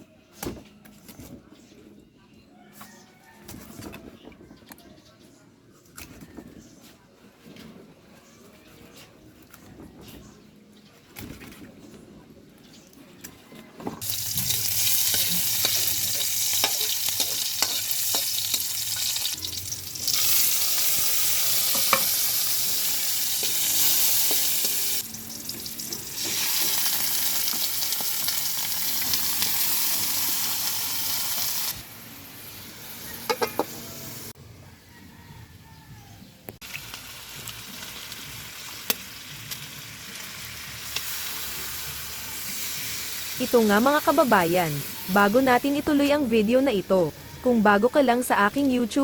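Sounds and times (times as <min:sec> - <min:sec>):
food sizzling in a pan: 0:14.0 - 0:31.8, 0:36.6 - 0:45.1
utensil clinking and scraping: 0:14.4 - 0:19.4.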